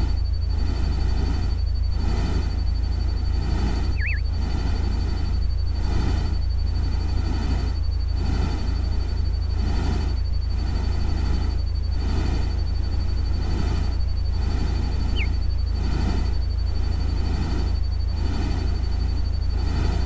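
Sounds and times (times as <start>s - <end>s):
thin steady high tone: 2.6s - 5.3s, 14.3s - 17.0s.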